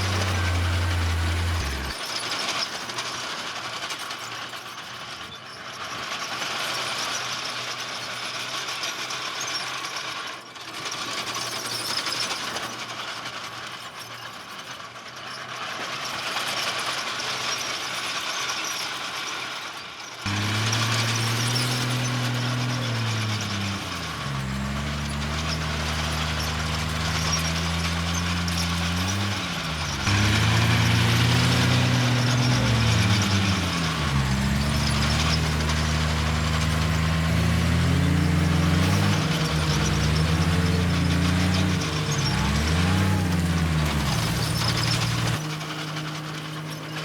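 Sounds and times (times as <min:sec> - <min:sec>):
bulldozer diesel engine under load: 0:00.0 - 0:02.0, 0:20.3 - 0:47.0.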